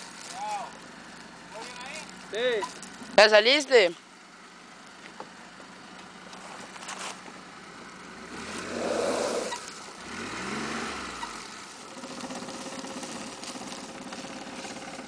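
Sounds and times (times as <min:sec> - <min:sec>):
vehicle moving: 0:04.8 - 0:15.0
engine revving: 0:08.0 - 0:15.0.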